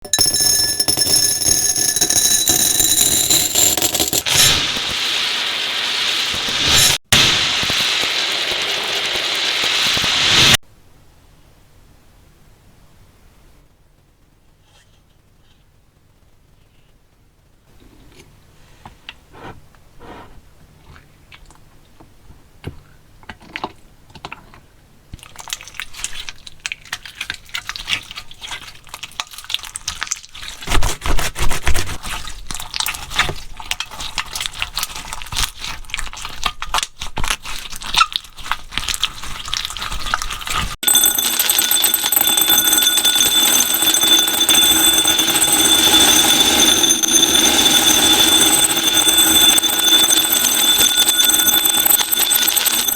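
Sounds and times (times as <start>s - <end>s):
alarm-like ringing: 0.0s - 4.2s, 40.8s - 52.9s.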